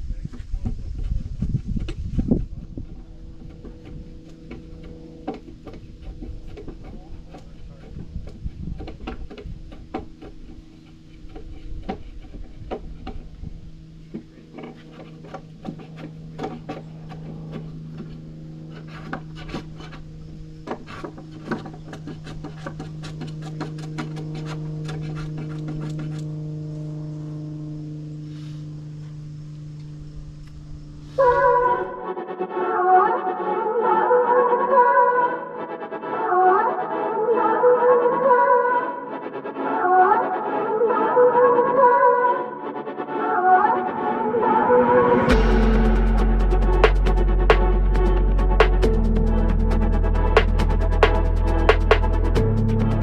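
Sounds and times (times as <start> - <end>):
steady machine hum: 0.0 - 32.5, 42.0 - 53.0.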